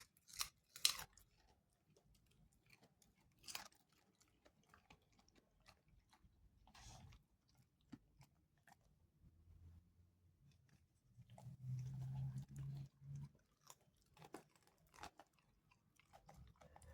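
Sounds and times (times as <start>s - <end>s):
dog crunching carrot: 0.0s - 9.1s, 10.4s - 16.9s
chewing clicks: 11.2s - 16.9s.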